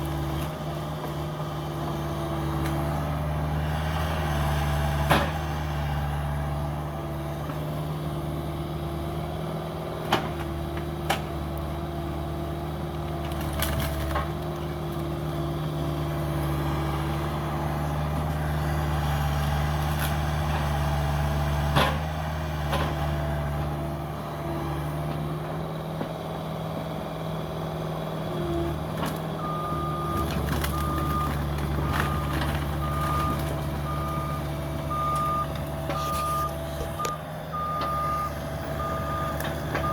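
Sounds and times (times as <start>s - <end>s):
excavator diesel engine running: 0.0s - 39.9s
reversing alarm beeping: 29.4s - 39.9s.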